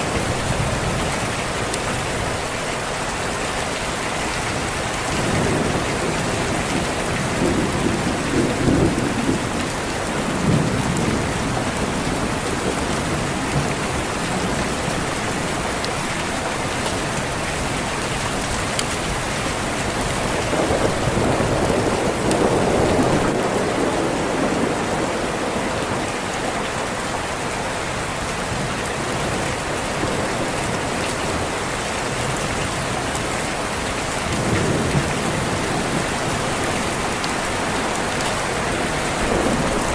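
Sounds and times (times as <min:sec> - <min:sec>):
heavy rain on a window: 0:00.0 - 0:39.9
rolling thunder: 0:05.1 - 0:15.4, 0:19.8 - 0:26.1, 0:34.2 - 0:39.9.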